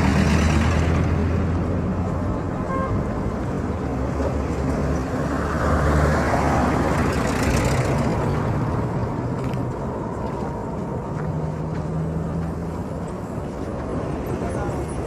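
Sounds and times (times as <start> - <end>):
traffic engines rumbling: 0.0 - 15.0
vehicle passing close: 4.3 - 9.8.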